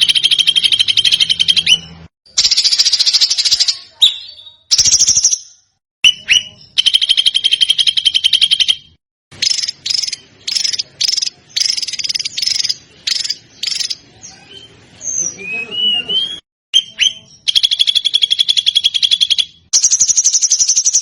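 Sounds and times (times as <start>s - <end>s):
songbird rattling calls: 6.7s - 14.0s.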